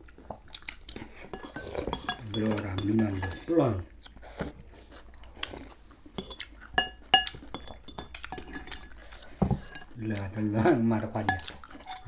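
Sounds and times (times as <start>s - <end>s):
spoons clinking against bowls: 1.3s - 3.7s, 6.2s - 10.2s, 11.1s - 12.0s.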